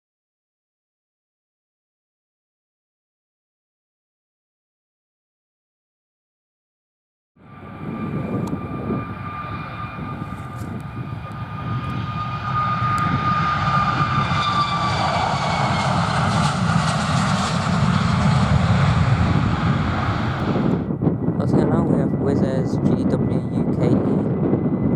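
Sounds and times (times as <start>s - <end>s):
aircraft engines rumbling and whining: 7.4s - 24.9s
wind rumble on microphone: 7.4s - 24.9s.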